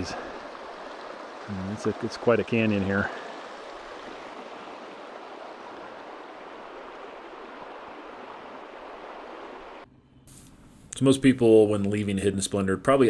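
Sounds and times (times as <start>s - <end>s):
river water rushing over rocks: 0.0s - 9.8s.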